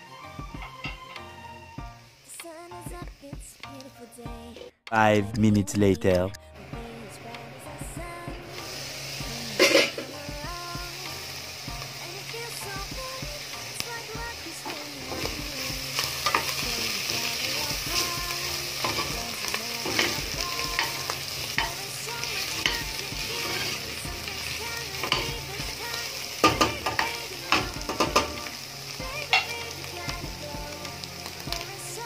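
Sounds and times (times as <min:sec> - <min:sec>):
food sizzling in a pot: 0:00.0 - 0:04.7, 0:06.6 - 0:32.0.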